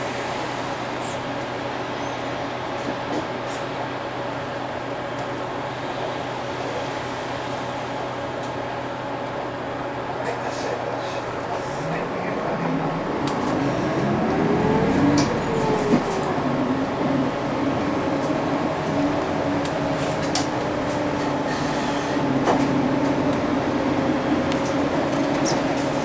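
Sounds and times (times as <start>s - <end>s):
bus diesel engine accelerating: 5.5s - 26.0s
road noise: 10.0s - 26.0s.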